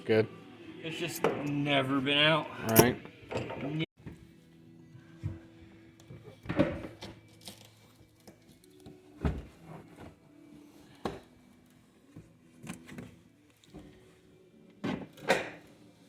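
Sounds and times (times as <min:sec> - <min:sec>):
car parts and tools clunking: 0:02.6 - 0:04.3, 0:05.2 - 0:10.2.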